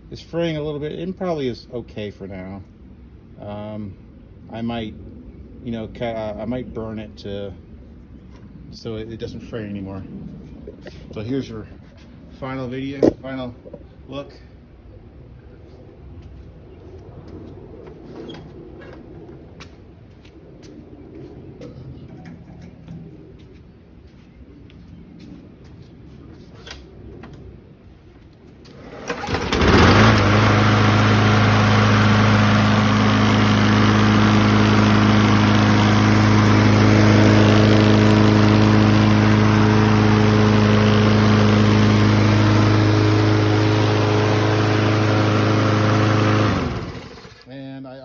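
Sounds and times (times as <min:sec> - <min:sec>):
lawn mower engine running: 0:28.7 - 0:47.5.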